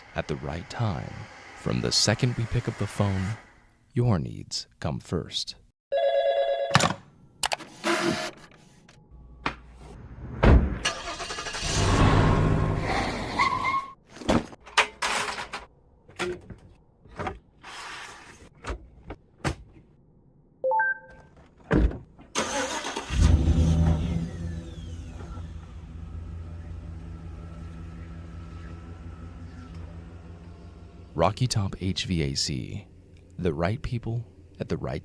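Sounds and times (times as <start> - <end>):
machine starting and humming: 0.0 - 3.6, 22.8 - 31.8
motor hum: 24.4 - 31.2.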